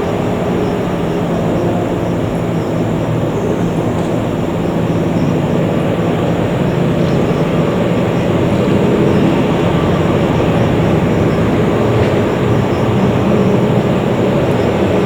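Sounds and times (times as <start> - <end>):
jet engines humming: 0.0 - 15.0.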